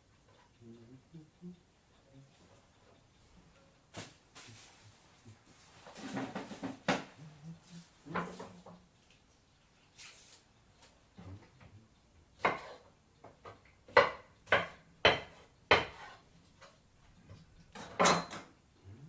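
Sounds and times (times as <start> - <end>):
utensils and dishes clattering: 17.7 - 18.5.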